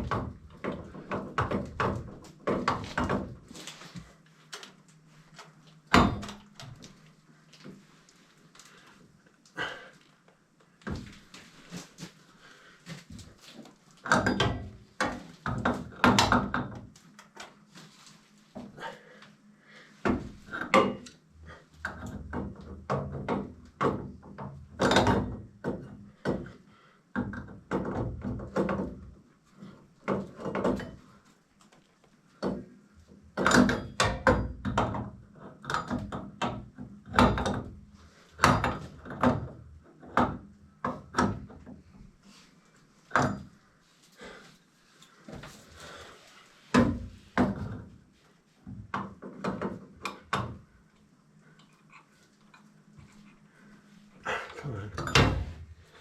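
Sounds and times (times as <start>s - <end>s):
faint steady hum: 36.8s - 56.0s.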